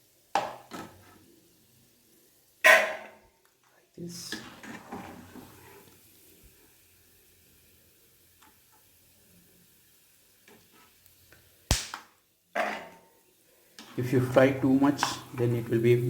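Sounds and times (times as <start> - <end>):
nuts sizzling in oil: 4.3 - 12.0
sharp clack: 11.7 - 12.0.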